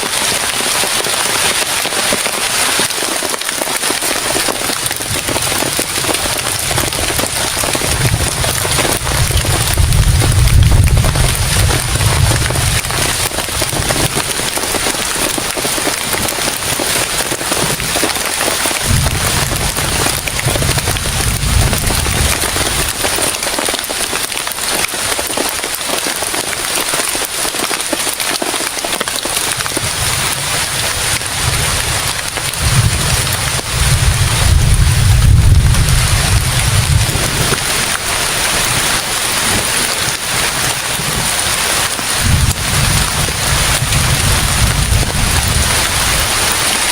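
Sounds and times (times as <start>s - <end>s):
heavy rain falling: 0.0s - 46.9s
deep low rumble: 18.9s - 22.4s.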